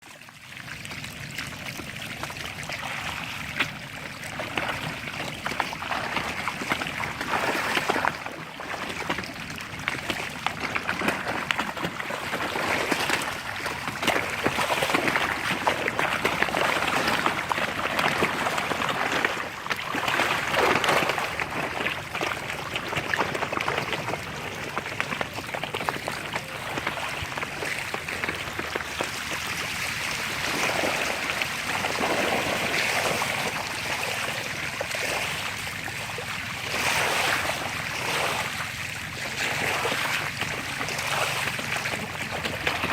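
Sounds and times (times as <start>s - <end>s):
river water rushing: 25.8s - 38.6s.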